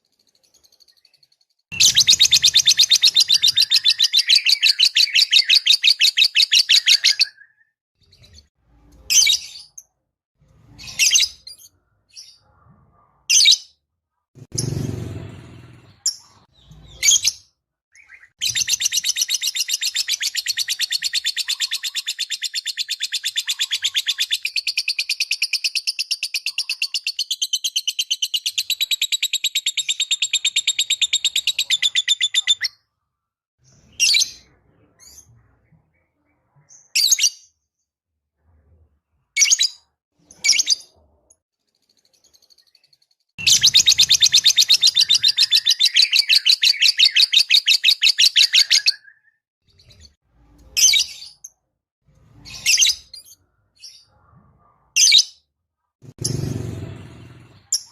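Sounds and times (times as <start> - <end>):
bird chirps: 0.0 - 9.9, 16.0 - 32.9, 41.7 - 51.6
bird chattering trill: 43.4 - 48.9.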